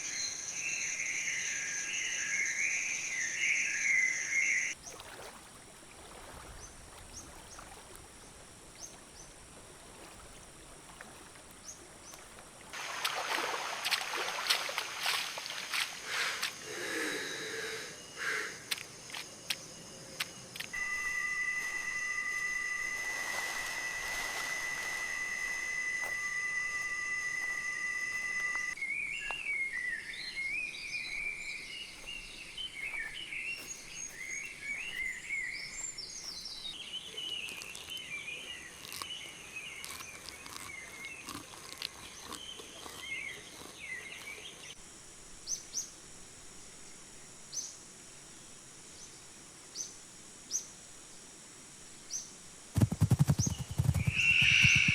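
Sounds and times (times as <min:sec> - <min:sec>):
high-pitched insect drone: 0:15.6 - 0:36.8, 0:52.8 - 0:54.9
faint high chirps: 0:16.8 - 0:38.8, 0:52.8 - 0:54.9
warbling bird calls: 0:20.7 - 0:41.3, 0:52.8 - 0:54.9.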